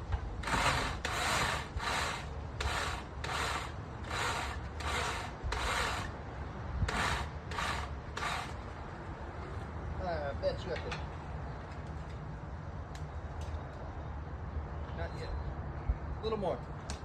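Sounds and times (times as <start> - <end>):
hand saw rasping through wood: 0.4 - 6.1, 6.9 - 8.6.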